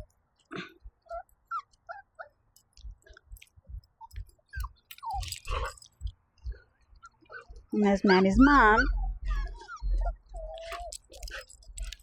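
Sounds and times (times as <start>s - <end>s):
puppies whimpering: 1.0s - 3.2s, 4.0s - 12.0s
soft low thumps: 2.7s - 12.0s.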